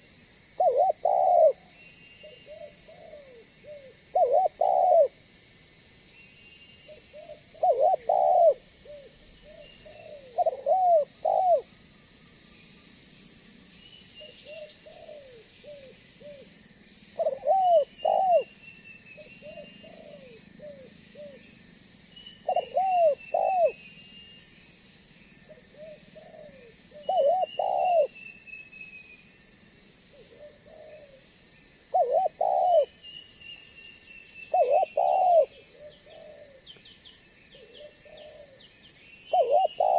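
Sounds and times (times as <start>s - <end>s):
dove cooing: 0.6s - 1.6s, 2.2s - 5.2s, 6.9s - 11.7s, 14.4s - 16.4s, 17.2s - 18.5s, 19.4s - 21.4s, 22.4s - 23.8s, 25.5s - 28.1s, 30.2s - 31.2s, 31.9s - 32.9s, 34.5s - 36.7s, 37.5s - 38.7s, 39.3s - 39.9s.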